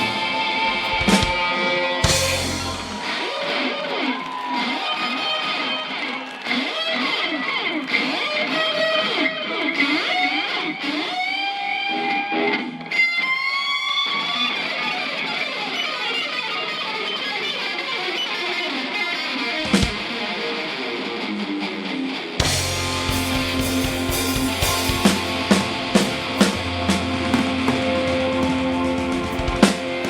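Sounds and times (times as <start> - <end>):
electric guitar lead: 0.0 - 30.0
live rock band playing: 0.0 - 30.0.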